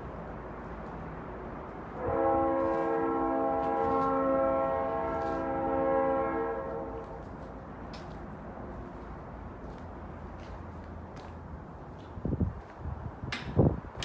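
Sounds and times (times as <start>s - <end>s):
train horn blast: 1.9s - 7.5s.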